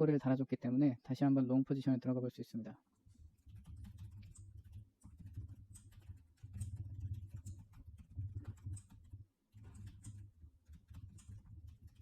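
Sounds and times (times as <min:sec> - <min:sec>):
mouse and keyboard clicks: 0:03.5 - 0:12.0.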